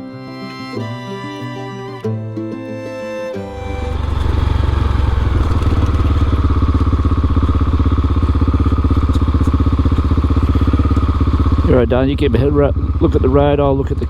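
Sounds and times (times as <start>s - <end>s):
motorcycle engine running: 3.5s - 14.0s.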